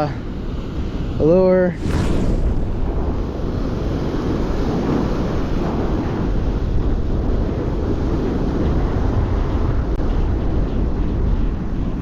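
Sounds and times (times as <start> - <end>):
wind buffeting microphone: 0.0 - 12.0
breaking surf: 1.7 - 5.9.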